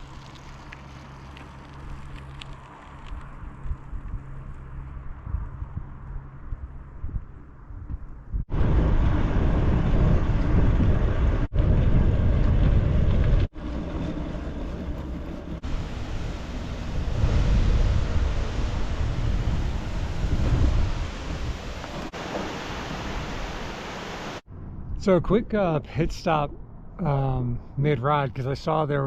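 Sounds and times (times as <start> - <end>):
wind buffeting microphone: 3.0 - 23.7.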